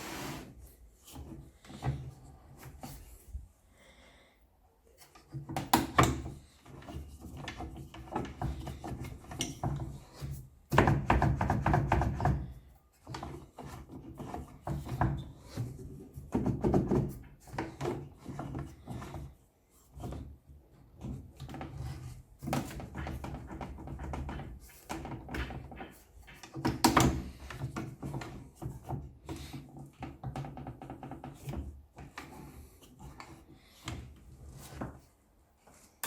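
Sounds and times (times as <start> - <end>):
wood scraping on wood: 0.0 - 0.7.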